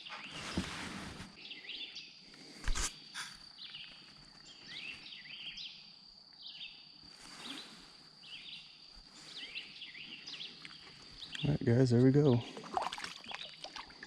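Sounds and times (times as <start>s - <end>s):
soft rustle: 0.0s - 1.4s, 7.0s - 11.2s
songbird chirping: 0.0s - 14.0s.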